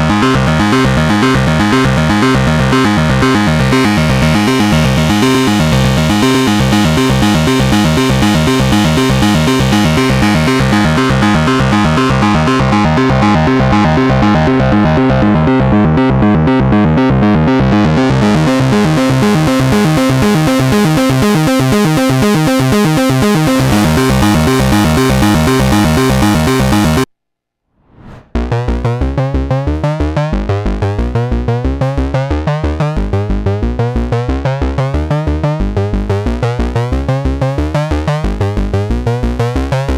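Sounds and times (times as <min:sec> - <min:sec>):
fast synthesizer arpeggio: 0:00.0 - 0:27.1
pulsing synth bass line: 0:00.0 - 0:27.1, 0:28.3 - 0:39.9.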